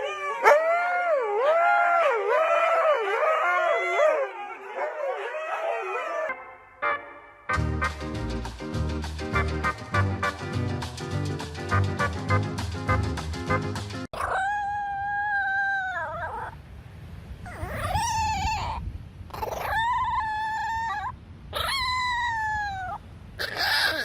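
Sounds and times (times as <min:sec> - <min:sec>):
cat yowling: 0:14.2 - 0:16.6, 0:17.5 - 0:24.0.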